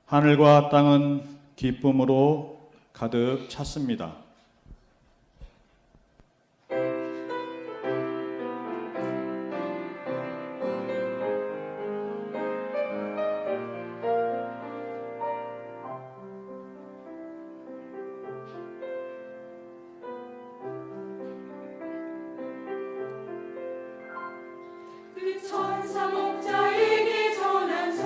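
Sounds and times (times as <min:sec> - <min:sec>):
piano chords and sustained notes: 0:06.7 - 0:28.0.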